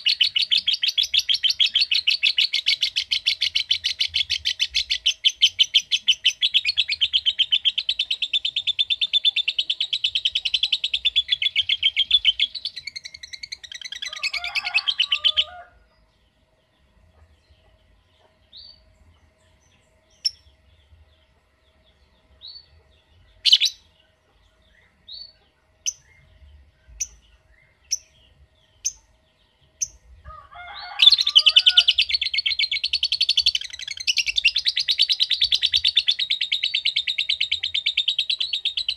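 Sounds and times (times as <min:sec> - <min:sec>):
lovebird chattering trill: 0:00.0 - 0:15.6, 0:23.3 - 0:24.0, 0:30.8 - 0:38.9.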